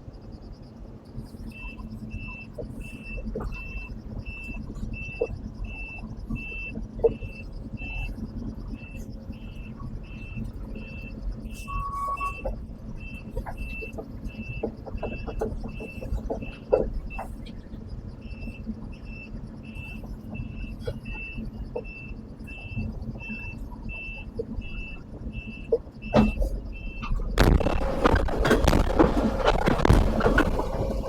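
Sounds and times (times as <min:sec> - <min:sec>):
diesel engine rumble: 0:00.0 - 0:31.0
backup alarm beeping: 0:08.8 - 0:17.3, 0:18.2 - 0:31.0.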